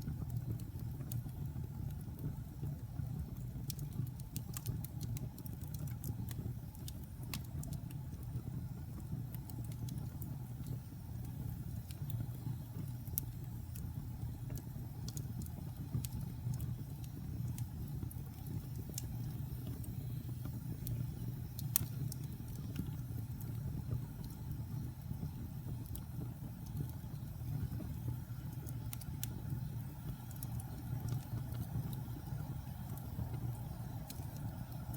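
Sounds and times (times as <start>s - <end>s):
wood fire crackling and popping: 0.0s - 34.9s.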